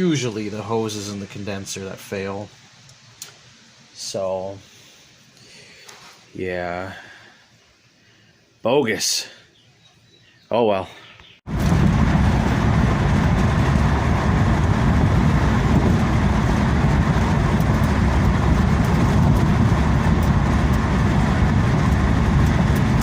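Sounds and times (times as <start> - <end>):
car engine and road noise: 11.5 - 23.0.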